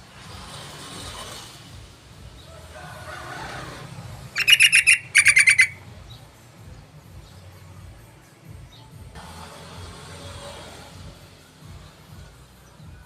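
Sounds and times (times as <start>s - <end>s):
bird rapid chattering calls: 4.4s - 5.8s.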